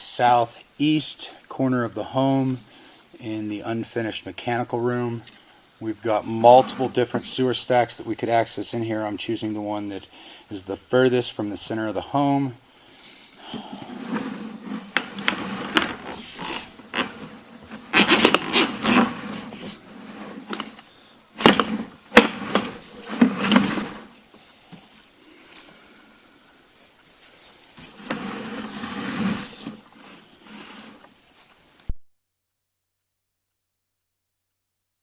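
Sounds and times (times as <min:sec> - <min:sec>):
equipment knocks and scraping: 0:06.0 - 0:07.6, 0:13.6 - 0:24.1, 0:27.8 - 0:31.0.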